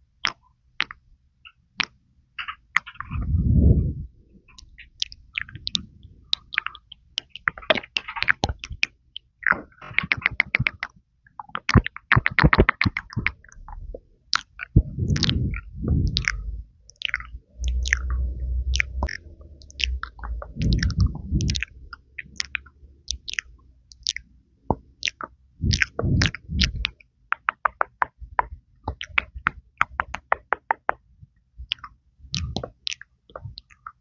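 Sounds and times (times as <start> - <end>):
muffled low puffs: 3.0 - 4.2, 14.8 - 16.7, 17.6 - 22.0, 25.6 - 26.9
tongue clicks: 4.5 - 31.0, 31.7 - 34.0
wet lip pops: 4.5 - 34.0.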